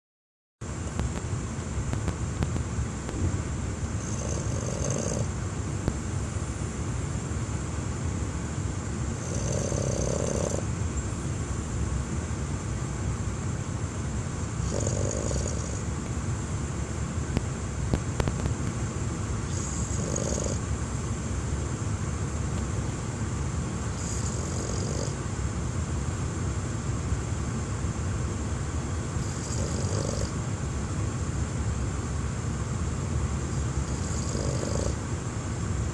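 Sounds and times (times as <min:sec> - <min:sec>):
road rumble inside car: 0:00.7 - 0:09.8, 0:15.4 - 0:35.9
dog snoring: 0:04.0 - 0:05.3, 0:09.2 - 0:10.7, 0:14.6 - 0:15.9, 0:19.4 - 0:20.6, 0:23.9 - 0:25.2, 0:29.2 - 0:30.4, 0:33.5 - 0:35.0.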